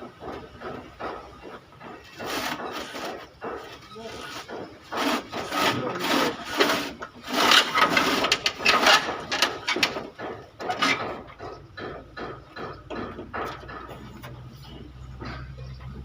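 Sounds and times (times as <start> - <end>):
rough scraping strokes: 2.1 - 9.8.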